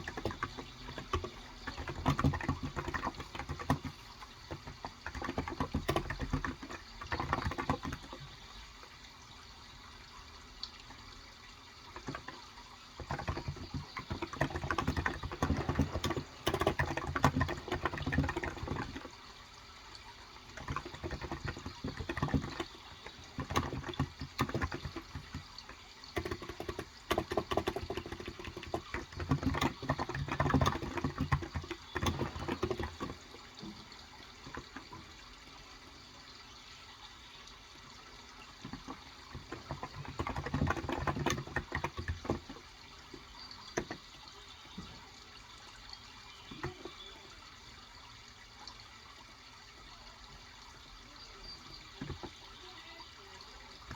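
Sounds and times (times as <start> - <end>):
keyboard typing: 0.0 - 8.4, 12.0 - 12.4, 13.0 - 19.1, 20.5 - 33.8, 38.6 - 42.6
flowing water: 0.0 - 53.9.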